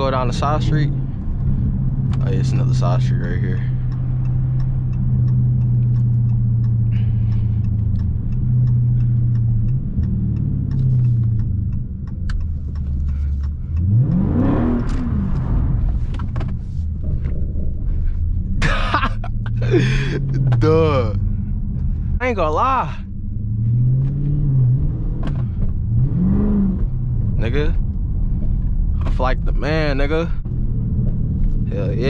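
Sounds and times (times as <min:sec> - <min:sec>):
car engine running and revving: 0:00.0 - 0:32.0.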